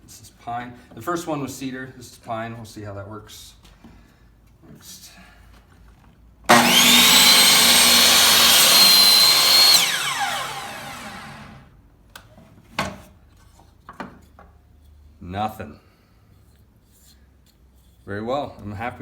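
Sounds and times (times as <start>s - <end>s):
miter saw cutting wood: 6.5s - 11.7s.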